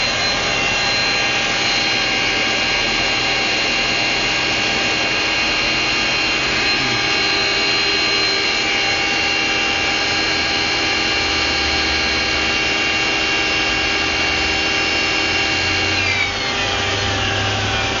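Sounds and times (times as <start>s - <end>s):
whirring whine: 0.0s - 18.0s.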